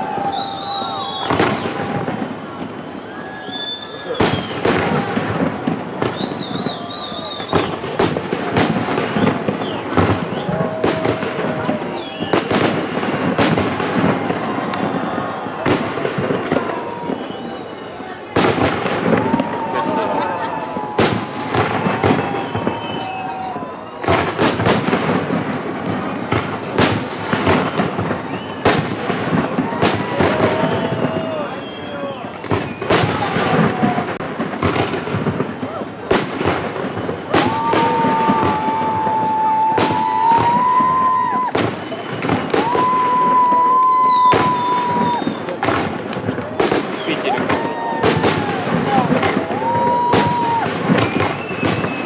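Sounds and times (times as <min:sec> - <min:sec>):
fireworks crackling: 0:00.0 - 0:52.0
fireworks exploding: 0:00.0 - 0:52.0
high wavering whistle: 0:00.3 - 0:01.4, 0:02.9 - 0:04.5, 0:06.2 - 0:07.8, 0:42.8 - 0:45.5.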